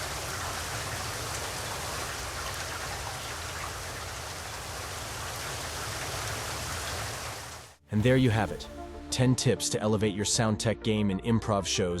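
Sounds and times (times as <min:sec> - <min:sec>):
steady rain patter: 0:00.0 - 0:08.7.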